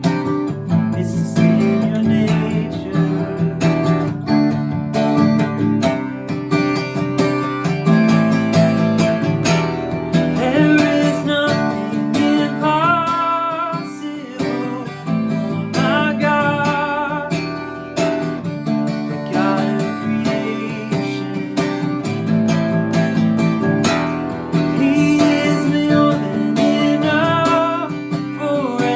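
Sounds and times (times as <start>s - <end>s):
man singing: 0.0s - 4.0s, 8.5s - 22.8s, 24.5s - 28.9s
acoustic guitar strumming: 0.0s - 28.9s.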